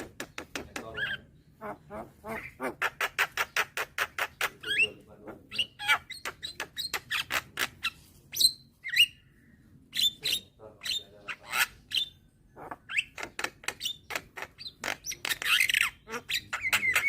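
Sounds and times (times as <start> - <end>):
bird chirping and whistling: 8.3 - 9.2.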